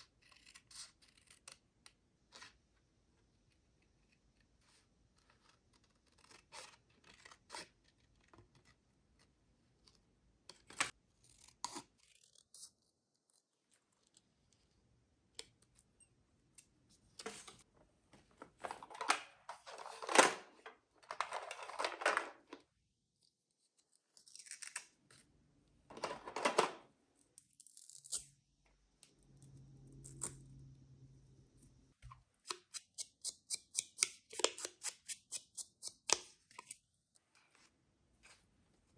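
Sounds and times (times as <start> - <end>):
low steady hum: 28.4 - 32.2.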